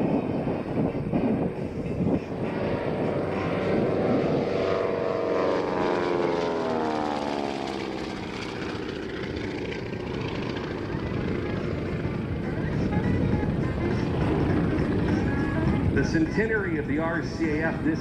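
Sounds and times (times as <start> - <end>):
propeller plane passing: 0.0 - 18.0.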